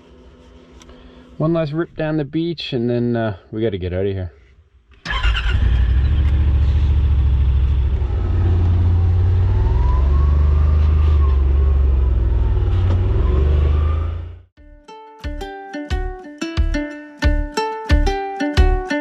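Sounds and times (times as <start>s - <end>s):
utility vehicle engine whining: 5.0s - 14.5s.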